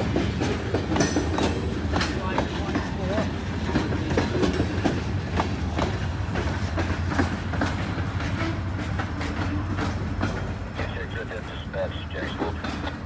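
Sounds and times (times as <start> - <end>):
wheels clicking over rail joints: 0.0 - 11.0
freight train rolling past: 0.0 - 13.0.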